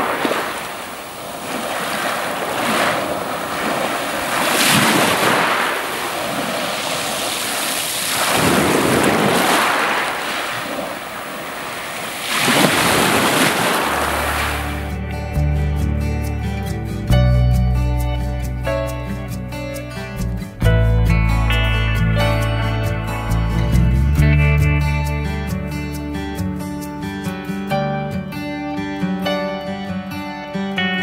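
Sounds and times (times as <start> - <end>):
waves washing on pebble beach: 0.0 - 14.9.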